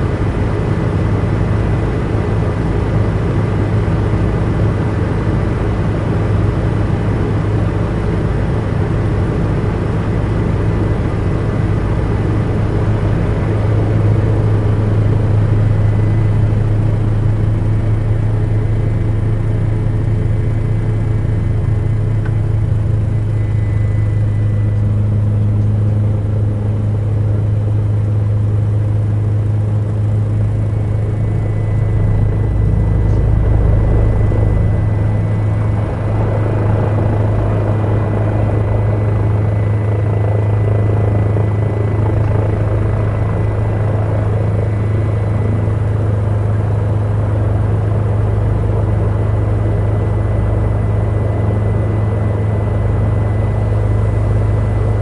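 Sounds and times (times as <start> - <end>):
helicopter engine and rotor drone: 0.0 - 55.0
faint high whine: 12.0 - 55.0.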